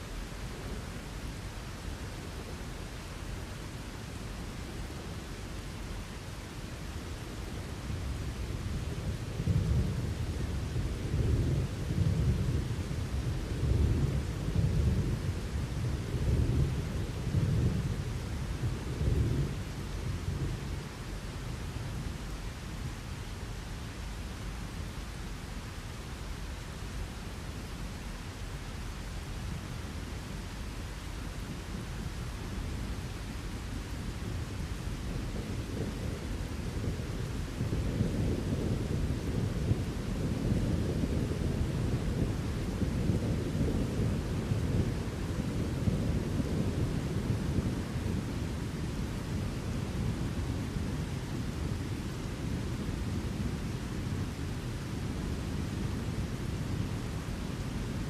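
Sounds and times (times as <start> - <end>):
rain hissing: 0.0 - 58.0
rolling thunder: 8.7 - 21.0, 34.0 - 54.3.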